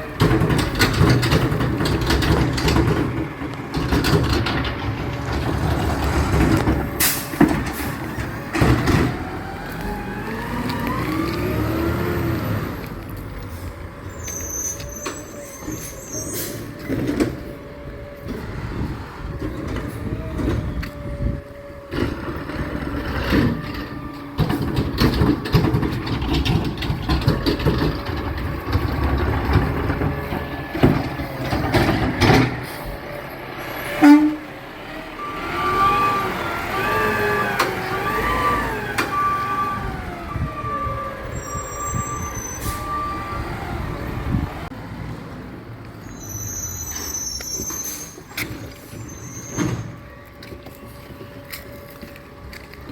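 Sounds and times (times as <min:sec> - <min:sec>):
garbage truck engine rumble: 0:00.0 - 0:52.9
knocks and clanks: 0:00.1 - 0:11.5, 0:21.9 - 0:32.8.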